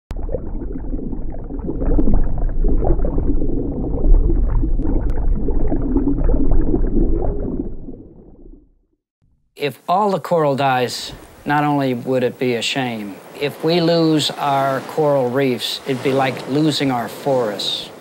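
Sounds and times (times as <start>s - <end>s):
underwater bubbling and gurgling: 0.1s - 8.9s
low rumble: 0.1s - 9.0s.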